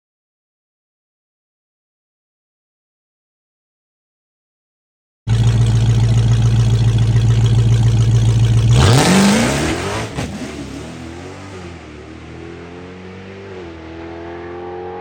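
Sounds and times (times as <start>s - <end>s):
drag racing car engine: 5.3s - 15.0s.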